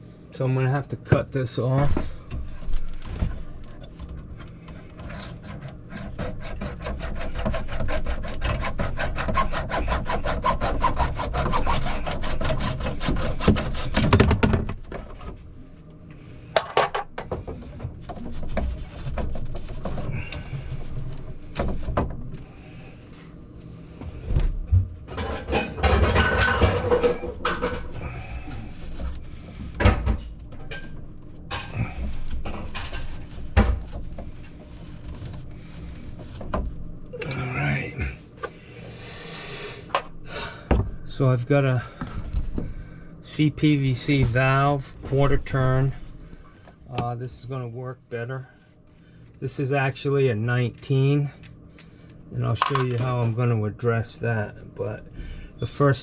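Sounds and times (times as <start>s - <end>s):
scraping of pipe and valve: 1.9s - 15.5s, 25.1s - 34.5s
saw cutting through pipe: 5.0s - 14.3s.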